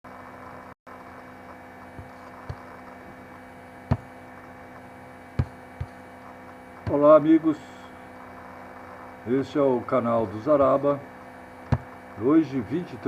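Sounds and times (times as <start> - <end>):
electrical mains hum: 0.2 - 13.0
short knocks: 2.0 - 3.2, 3.9 - 4.2, 4.8 - 6.0, 6.9 - 7.2, 11.7 - 12.0.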